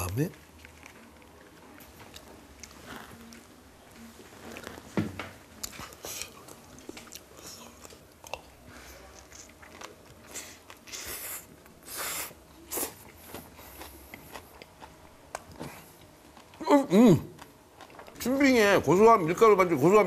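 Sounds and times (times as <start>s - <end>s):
person biting and chewing food: 9.2s - 18.2s.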